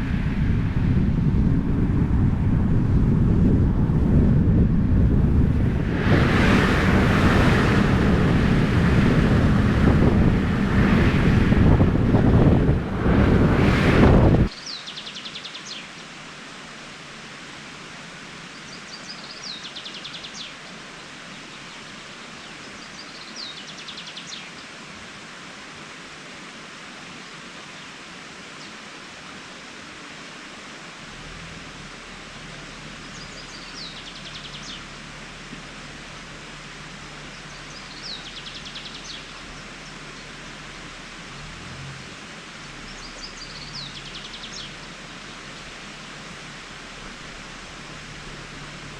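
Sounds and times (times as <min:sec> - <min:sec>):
steady rushing hiss: 0:00.0 - 0:48.9
songbird trilling: 0:37.3 - 0:40.3, 0:42.9 - 0:44.9.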